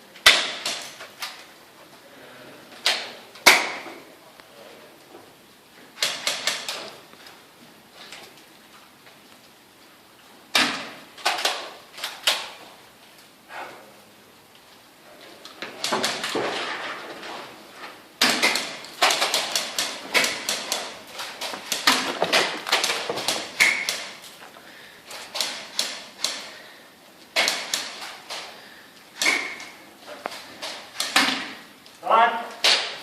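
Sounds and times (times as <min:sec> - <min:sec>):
airsoft guns firing: 0:18.2 - 0:24.2.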